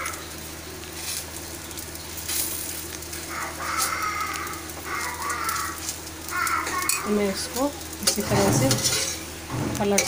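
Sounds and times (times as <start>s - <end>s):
food sizzling on hot iron: 0.0s - 10.0s
spatula scraping iron pan: 8.0s - 9.3s.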